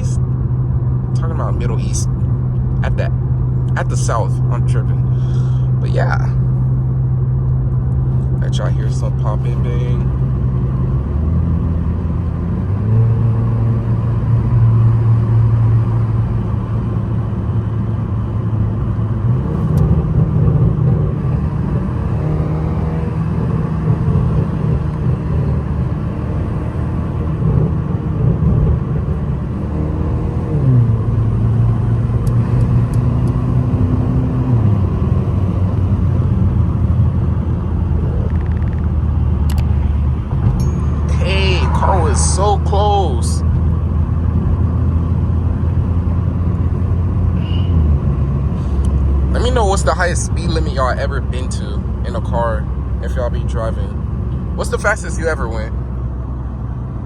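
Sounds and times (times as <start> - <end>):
car engine revving: 0.0 - 55.9
exhaust crackles: 12.2 - 55.7.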